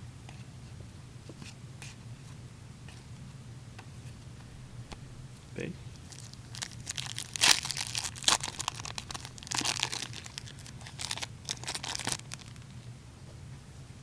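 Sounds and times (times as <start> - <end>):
wrapper tearing and crinkling: 6.0 - 12.7.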